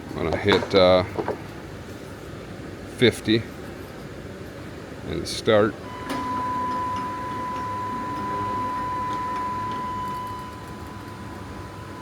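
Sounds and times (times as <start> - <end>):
low hum: 5.8 - 12.0
motor whine: 5.9 - 12.0.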